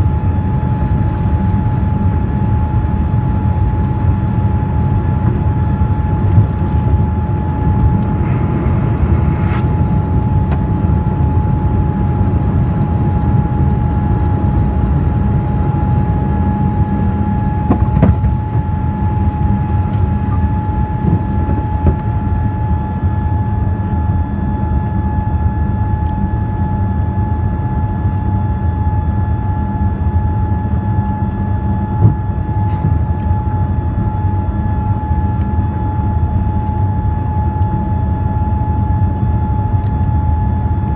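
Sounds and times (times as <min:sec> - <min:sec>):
jet engine rumble in cabin: 0:00.0 - 0:40.9
jet engine whine: 0:00.0 - 0:40.9.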